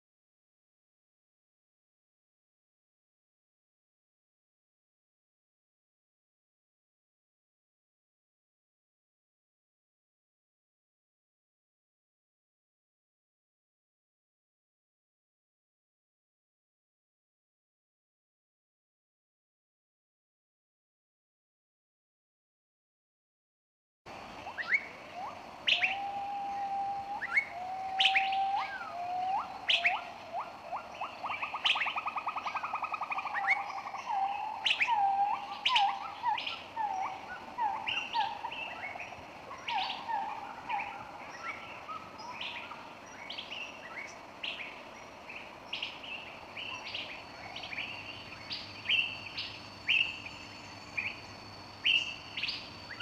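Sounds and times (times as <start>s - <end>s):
birds chirping and calling: 24.4s - 53.0s.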